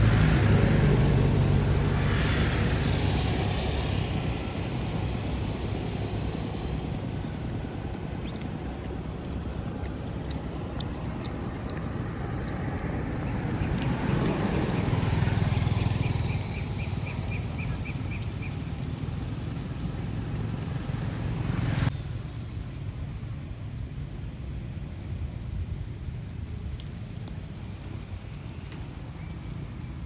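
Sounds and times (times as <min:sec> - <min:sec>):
vehicle engine passing: 0:00.0 - 0:21.9.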